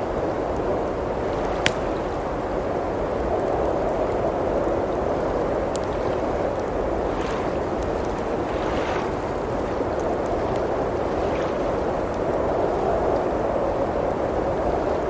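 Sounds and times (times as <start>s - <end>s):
wood fire crackling: 0.0s - 8.5s.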